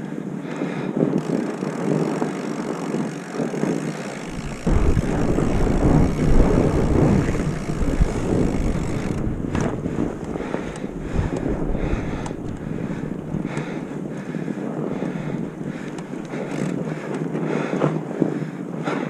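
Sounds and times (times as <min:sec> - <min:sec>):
bike rolling on trail: 0:00.0 - 0:19.0
wind rushing over microphone: 0:00.2 - 0:19.0
heavy low rumble: 0:04.2 - 0:14.2, 0:14.9 - 0:16.5.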